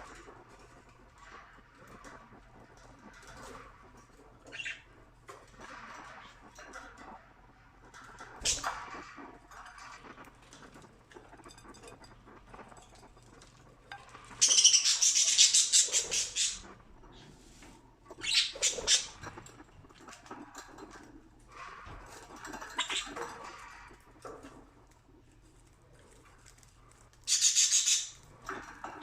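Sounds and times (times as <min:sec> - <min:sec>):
budgies chattering: 0:04.5 - 0:04.9, 0:14.4 - 0:16.7, 0:18.2 - 0:19.2, 0:27.3 - 0:28.2
beaks pecking seed: 0:25.6 - 0:29.0.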